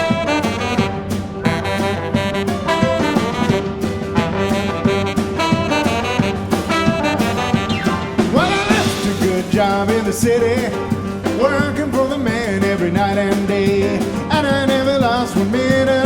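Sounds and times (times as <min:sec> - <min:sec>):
saxophone: 0:00.0 - 0:11.2
drum hits: 0:00.0 - 0:16.0
jazz band playing: 0:00.0 - 0:16.0
trombone: 0:00.0 - 0:16.0.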